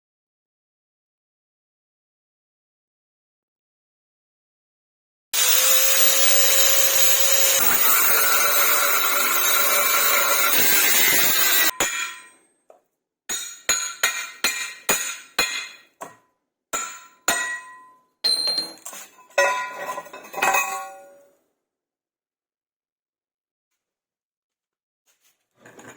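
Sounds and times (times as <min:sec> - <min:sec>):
power tool running: 0:05.4 - 0:11.7.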